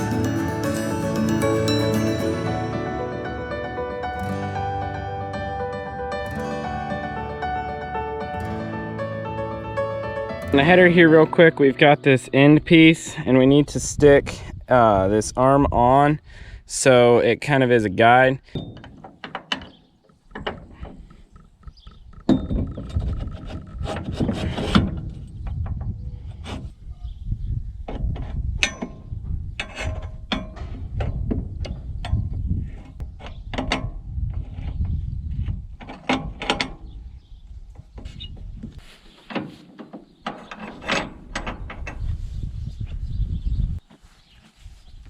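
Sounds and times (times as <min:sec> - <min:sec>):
metal parts clanking and scraping: 0:39.2 - 0:42.0.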